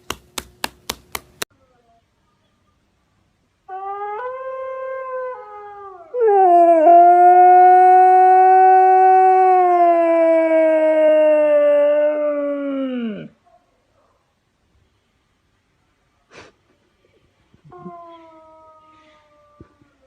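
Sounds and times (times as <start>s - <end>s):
dog howling: 3.7s - 13.4s, 17.7s - 20.0s.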